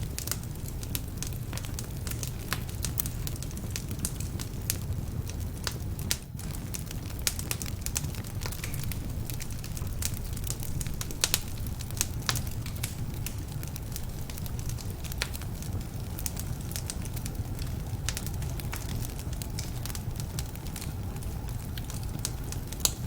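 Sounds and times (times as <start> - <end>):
fire crackling and popping: 0.0 - 23.0
fire low rumble: 0.0 - 23.0.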